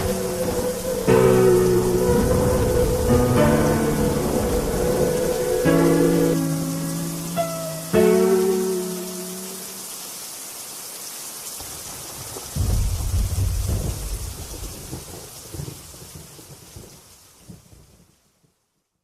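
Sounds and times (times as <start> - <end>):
thunder rumbling: 0.0 - 7.4, 12.2 - 16.6
guitar chord: 0.0 - 9.8
steady rain: 0.0 - 19.0.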